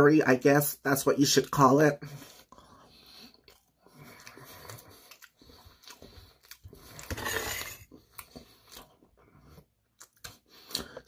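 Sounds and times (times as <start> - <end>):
person chewing food: 2.1 - 11.0
metal fork scraping metal bowl: 7.0 - 7.8.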